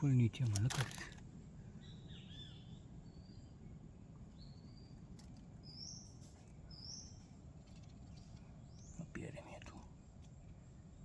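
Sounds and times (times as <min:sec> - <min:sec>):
birds whistling calls: 0:01.5 - 0:07.4.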